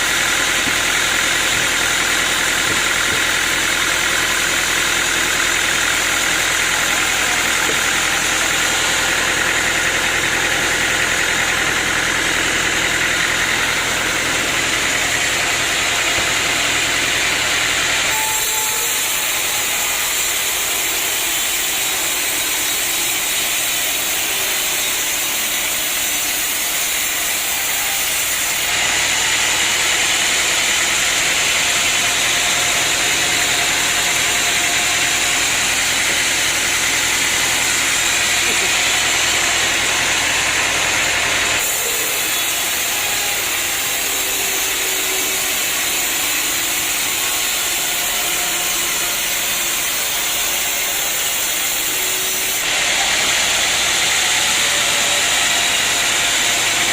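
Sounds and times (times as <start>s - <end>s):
sawmill machinery running: 0.0s - 56.9s.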